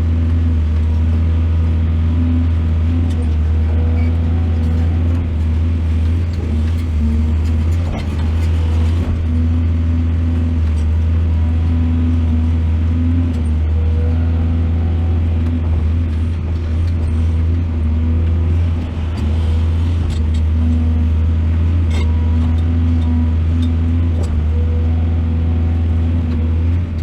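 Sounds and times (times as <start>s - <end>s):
excavator diesel engine droning: 0.0s - 27.0s.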